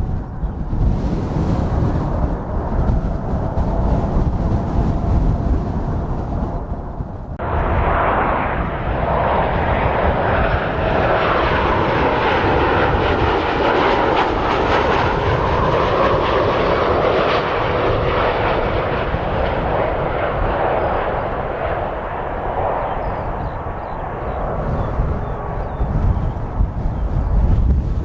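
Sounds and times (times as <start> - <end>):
jet airliner engines: 0.0 - 28.0.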